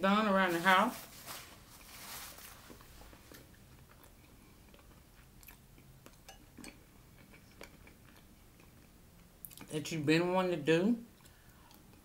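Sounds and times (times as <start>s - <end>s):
faint chewing: 2.7s - 9.7s.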